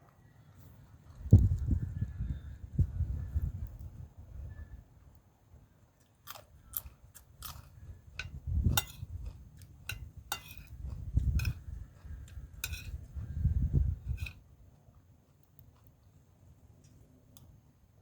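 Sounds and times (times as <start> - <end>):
low chewing sounds: 0.0 - 1.7, 5.9 - 17.5
person crunching food: 6.0 - 13.4.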